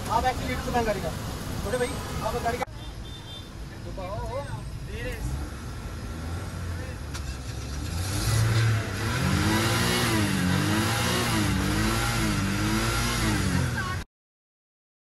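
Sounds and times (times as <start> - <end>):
car engine revving: 5.0 - 14.0.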